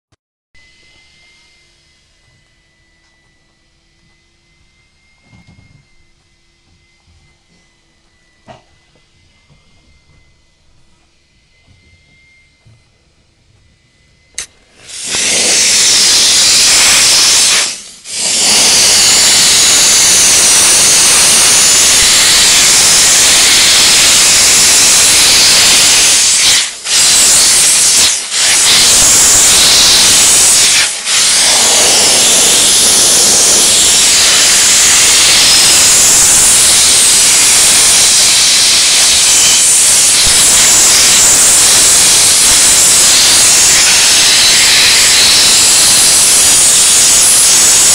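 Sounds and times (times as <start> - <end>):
steam cleaner jet hissing: 14.4 - 47.9.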